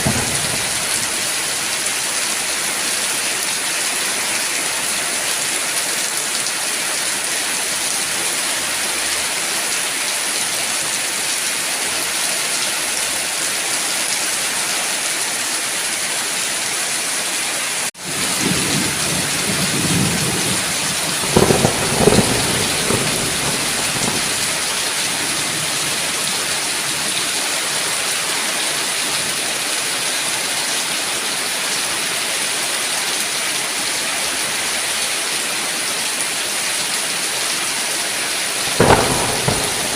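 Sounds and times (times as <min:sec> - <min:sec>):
thunder rumbling: 0:00.0 - 0:02.0, 0:18.1 - 0:27.0, 0:38.6 - 0:39.9
heavy rain hissing: 0:00.0 - 0:32.0, 0:33.7 - 0:39.9.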